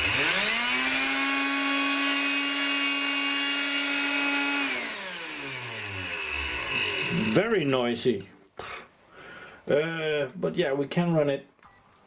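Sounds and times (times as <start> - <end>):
vacuum cleaner motor whining: 0.0 - 7.4.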